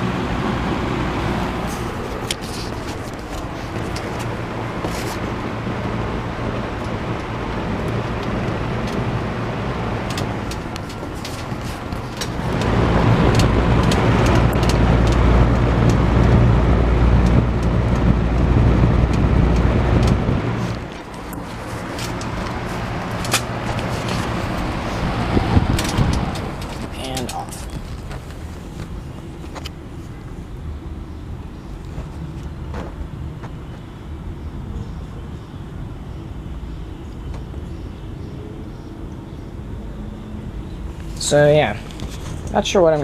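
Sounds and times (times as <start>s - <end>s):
low rumble: 0.0s - 30.0s
box fan whoosh and hum: 0.0s - 43.0s.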